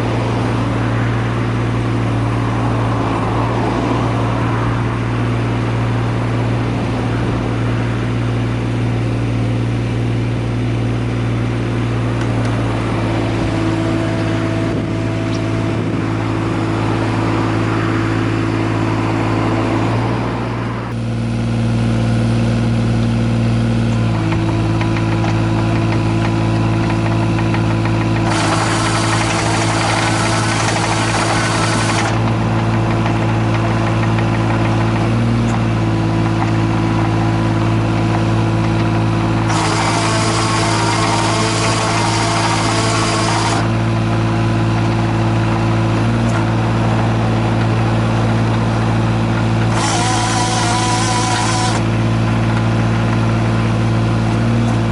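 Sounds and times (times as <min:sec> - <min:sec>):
diesel engine running: 0:00.0 - 0:54.9
hydraulics hissing and whining: 0:24.1 - 0:54.9.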